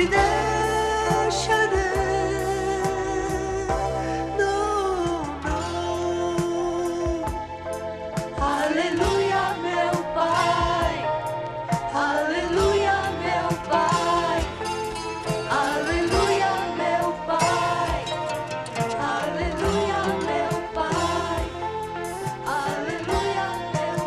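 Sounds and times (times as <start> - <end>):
gospel band instrumental: 0.0 - 24.0
drums keeping a steady beat: 6.4 - 24.0.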